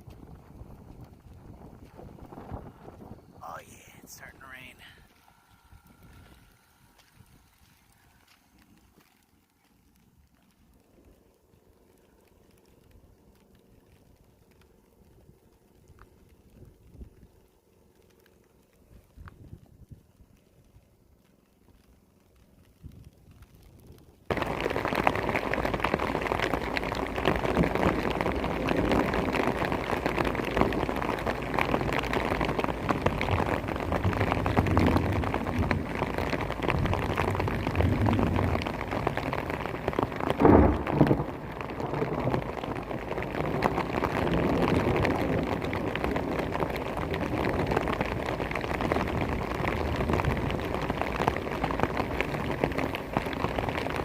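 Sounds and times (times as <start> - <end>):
heavy rain pouring: 0.0 - 20.9, 21.8 - 54.0.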